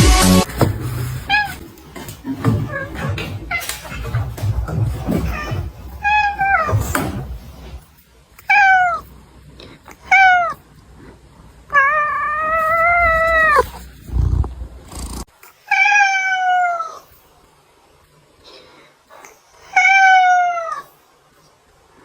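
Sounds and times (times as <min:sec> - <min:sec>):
cat meowing: 0:05.3 - 0:06.7, 0:08.4 - 0:09.1, 0:10.0 - 0:10.6, 0:11.7 - 0:13.8, 0:15.7 - 0:17.1, 0:19.7 - 0:20.9.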